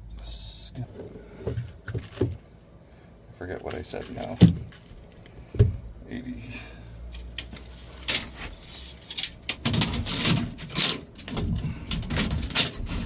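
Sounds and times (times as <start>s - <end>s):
tape measure and tools handled: 7.1s - 13.0s.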